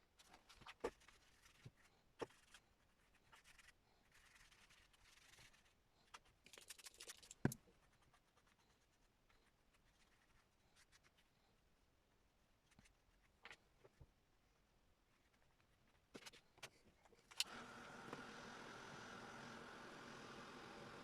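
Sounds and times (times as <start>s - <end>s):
paper scratching and rubbing: 0.2s - 11.3s.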